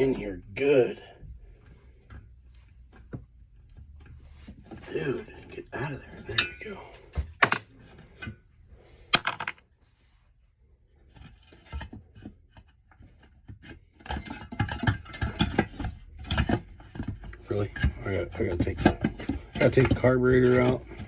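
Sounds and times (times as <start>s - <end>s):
tools clattering and scraping: 1.0s - 9.6s, 11.0s - 21.0s.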